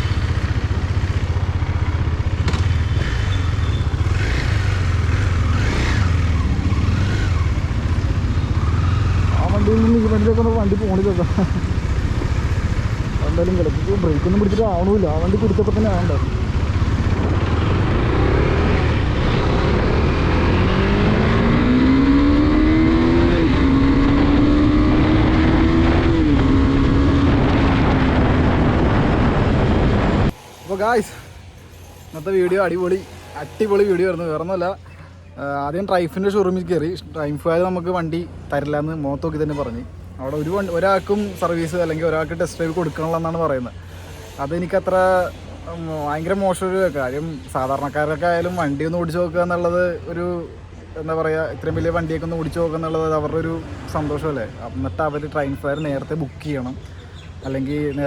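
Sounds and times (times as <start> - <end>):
motorcycle engine running: 0.0 - 30.4
wind rumble: 10.1 - 30.4.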